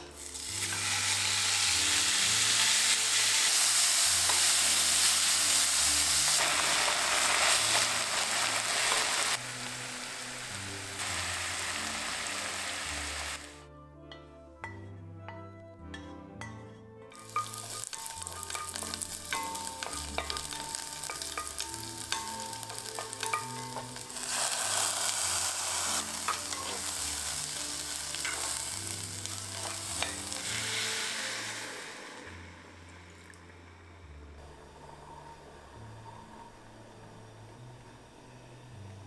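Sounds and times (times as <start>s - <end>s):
food sizzling in oil: 0.1s - 13.6s, 17.2s - 32.4s
rice poured into hot oil: 24.0s - 28.5s, 29.1s - 32.4s.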